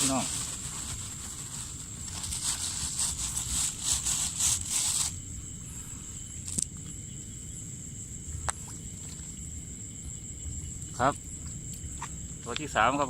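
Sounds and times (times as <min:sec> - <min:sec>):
rustling and scraping: 0:00.0 - 0:05.2
insects droning: 0:00.0 - 0:13.0.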